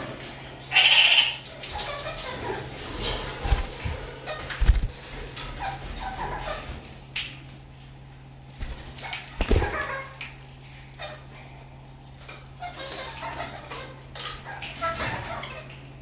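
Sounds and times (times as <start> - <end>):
parakeets chattering calls: 0.7 - 5.0, 8.6 - 11.3.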